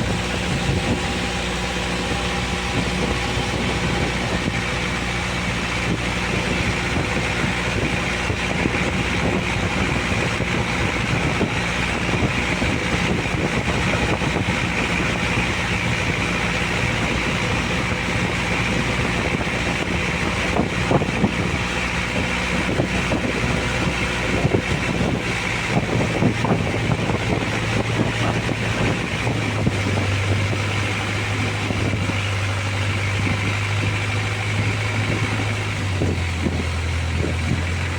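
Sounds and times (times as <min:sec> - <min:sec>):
boat engine humming: 0:00.0 - 0:37.9
wind and water noise: 0:00.0 - 0:37.9.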